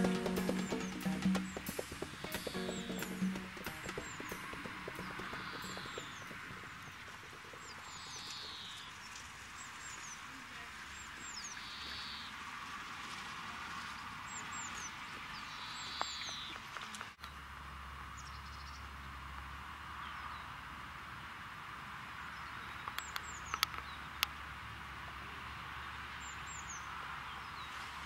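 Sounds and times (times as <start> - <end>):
small birds chirping: 0.0 - 12.3, 14.3 - 17.3, 22.2 - 24.4.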